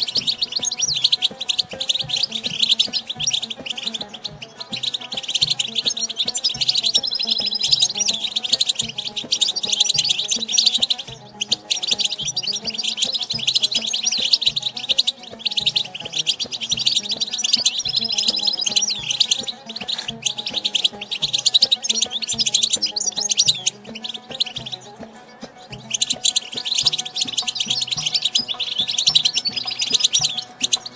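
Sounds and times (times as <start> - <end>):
finch twittering song: 0.0 - 30.9.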